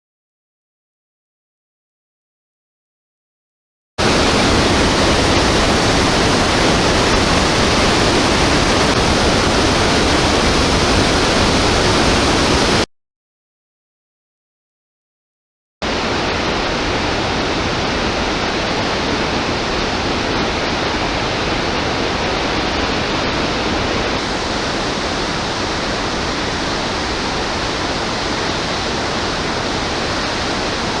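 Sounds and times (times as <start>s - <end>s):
rush of falling water: 4.0s - 12.9s, 15.8s - 31.0s.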